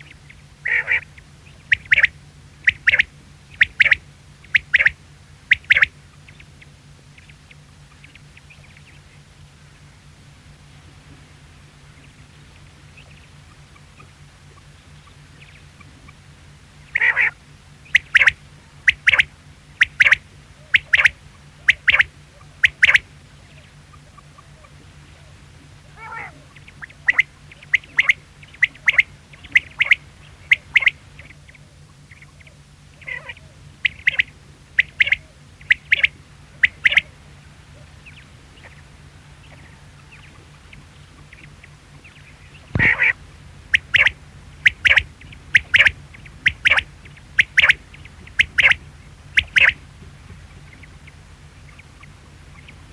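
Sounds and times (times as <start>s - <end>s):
quail calling: 0.0s - 52.9s.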